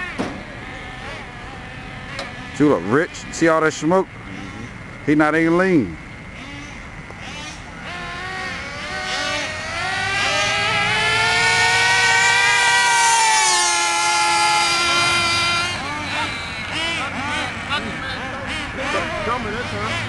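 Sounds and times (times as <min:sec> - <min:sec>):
rc truck engine whining: 0:00.0 - 0:20.0.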